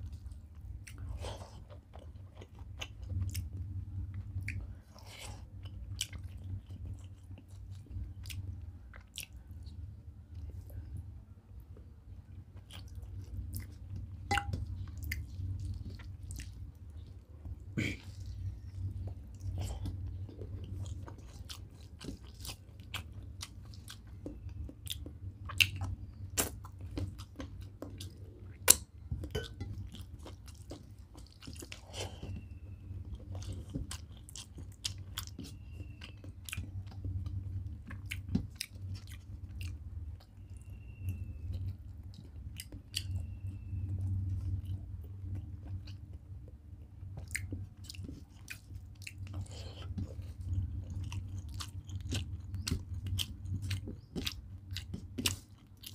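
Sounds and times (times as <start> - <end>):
person chewing: 0.0 - 9.7, 12.5 - 40.7, 41.4 - 55.9.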